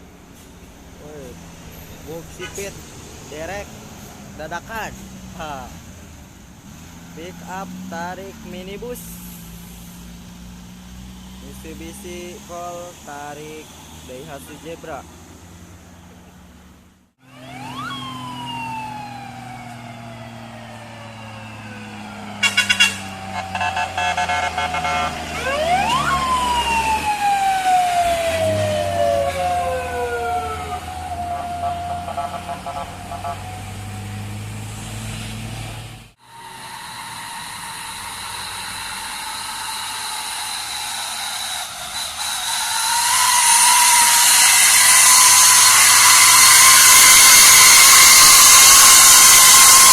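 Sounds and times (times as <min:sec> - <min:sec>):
approaching vehicle whine: 0:00.0 - 0:49.9
heavy truck engines humming: 0:00.0 - 0:49.9
siren wailing: 0:17.2 - 0:33.8, 0:36.2 - 0:49.9.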